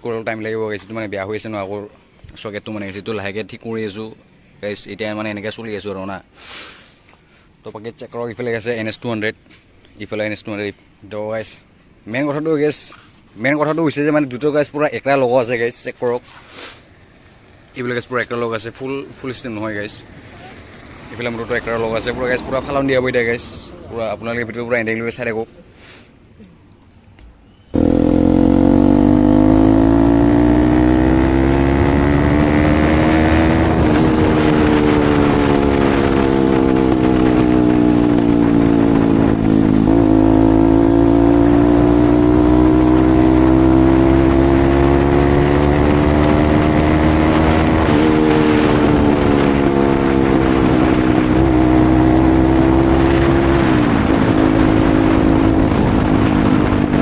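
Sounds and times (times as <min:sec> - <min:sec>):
motorcycle accelerating through gears: 0:27.7 - 0:57.0.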